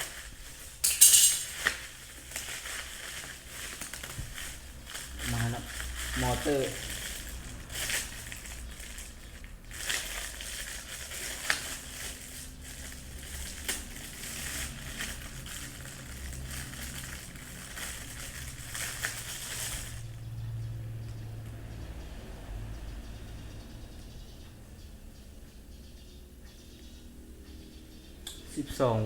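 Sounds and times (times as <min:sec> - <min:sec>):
plastic packaging crinkling: 0:00.0 - 0:20.2.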